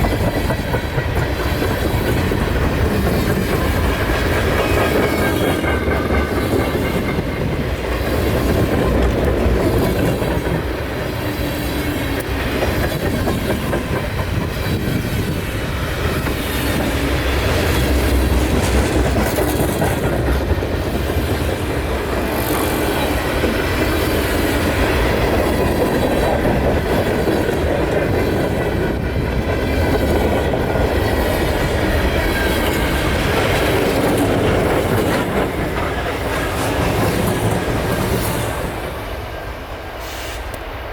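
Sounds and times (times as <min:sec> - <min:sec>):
wheels clacking over rail joints: 0:00.0 - 0:39.3
freight train rolling past: 0:00.0 - 0:40.9.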